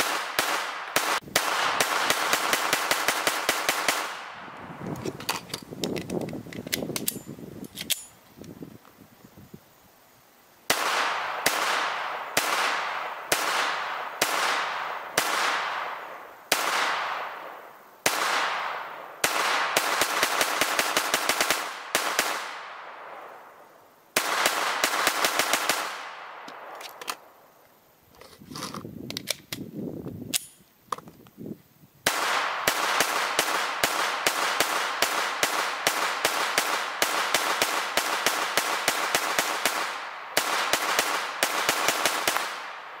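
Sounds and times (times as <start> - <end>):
rifle gunshots with echo: 0.0 - 4.5, 10.7 - 23.4, 24.2 - 26.8, 32.1 - 43.0
metal handling clicks: 4.9 - 8.6, 28.1 - 29.6, 30.3 - 31.3.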